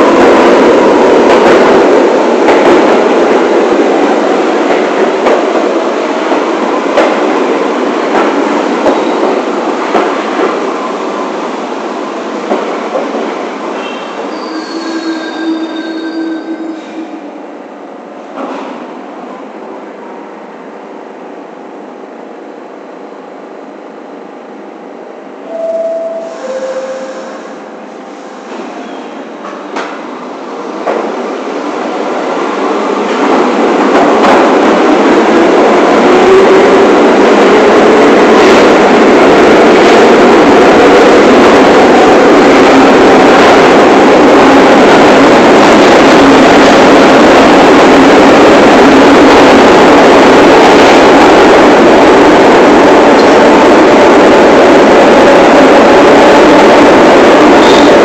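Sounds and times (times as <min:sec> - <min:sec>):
subway train rumble: 0:00.0 - 0:58.0.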